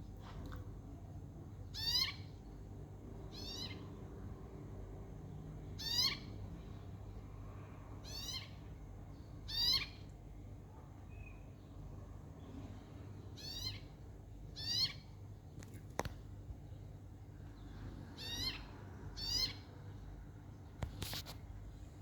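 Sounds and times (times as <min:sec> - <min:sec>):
birds calling: 0:13.3 - 0:15.2, 0:16.7 - 0:19.8.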